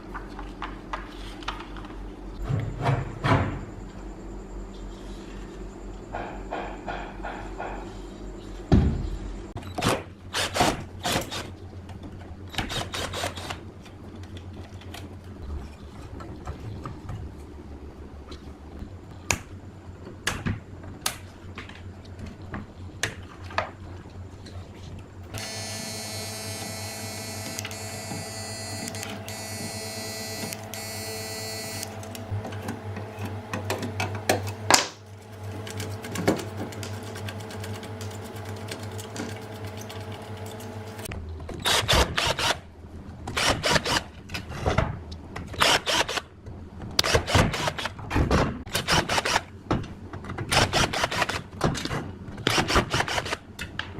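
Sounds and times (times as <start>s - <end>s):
mechanical hum: 0.0s - 53.9s.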